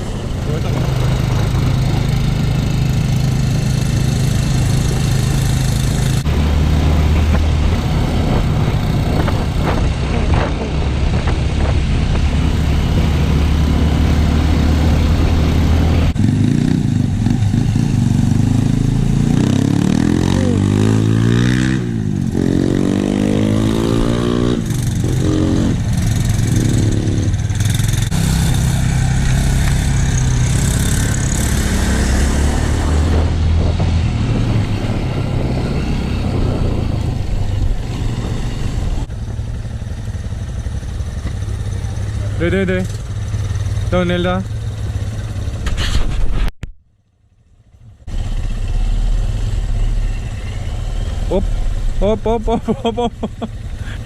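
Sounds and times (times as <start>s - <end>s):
dirt bike engine revving: 0.0s - 37.2s.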